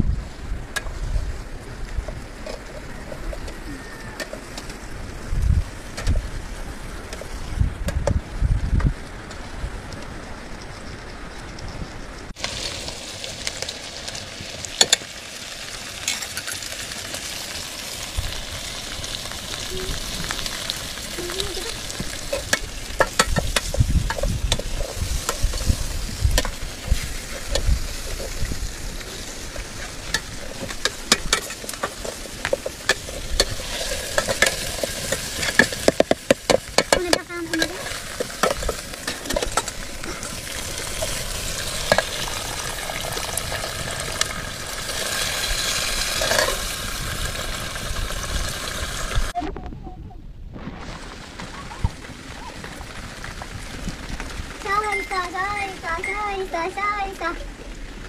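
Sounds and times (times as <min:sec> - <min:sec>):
chicken sizzling in hot oil: 0:12.4 - 0:49.4
metal ladle scraping pot: 0:46.0 - 0:46.8.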